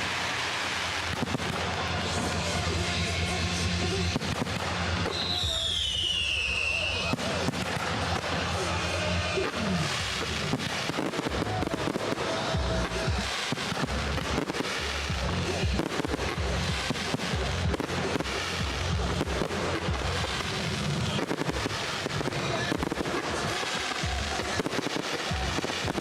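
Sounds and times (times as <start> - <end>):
fireworks bangs and crackles: 0.0 - 26.0
music playing: 0.0 - 26.0.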